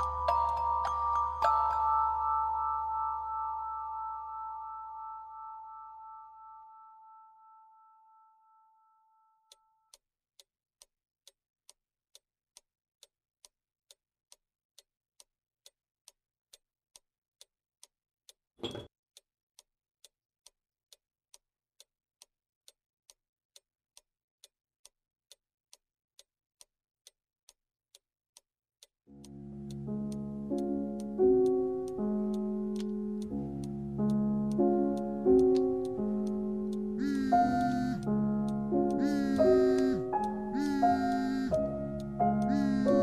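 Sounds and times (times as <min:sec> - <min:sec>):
clock ticking faintly: 0:28.8 - 0:43.0.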